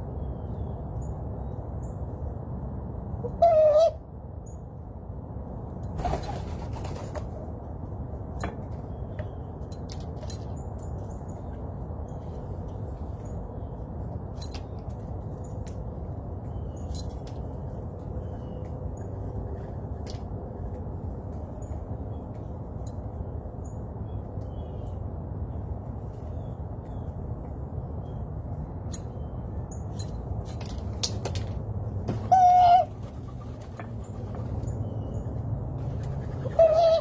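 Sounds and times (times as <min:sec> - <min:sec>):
loud wavering bird call: 0:03.3 - 0:04.0, 0:32.2 - 0:33.4, 0:36.4 - 0:37.0.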